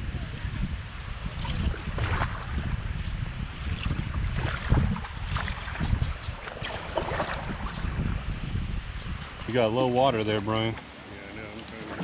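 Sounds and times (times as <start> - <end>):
wind buffeting microphone: 0.0 - 10.8
paddle splashing in water: 1.3 - 2.7, 3.6 - 8.0, 10.7 - 12.0.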